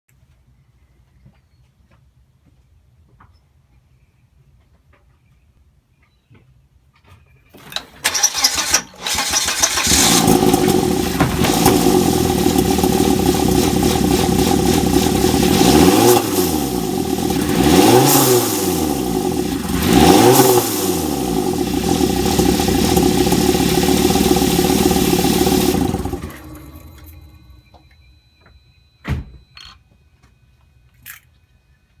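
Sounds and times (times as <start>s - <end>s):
car engine starting and revving: 7.6s - 27.6s.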